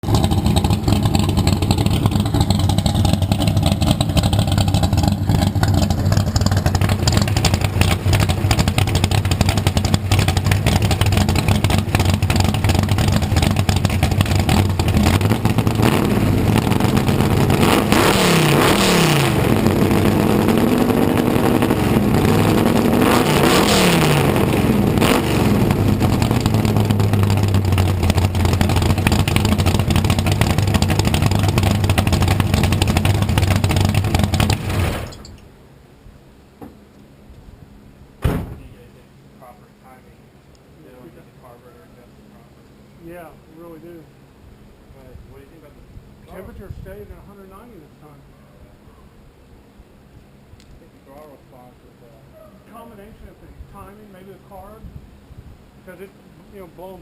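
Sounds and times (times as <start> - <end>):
car engine idling and revving: 0.0 - 35.4.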